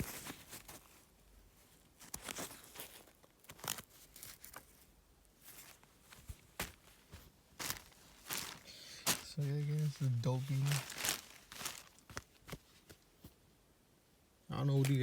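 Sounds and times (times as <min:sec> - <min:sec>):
fabric rustling and crinkling: 0:00.0 - 0:13.4, 0:14.7 - 0:15.0.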